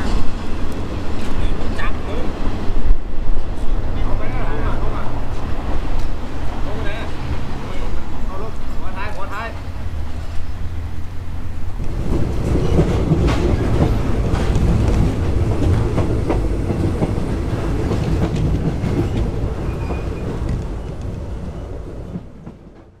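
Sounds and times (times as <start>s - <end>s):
train rumbling on track: 0.0s - 23.0s
wheels clicking over rail joints: 11.7s - 23.0s.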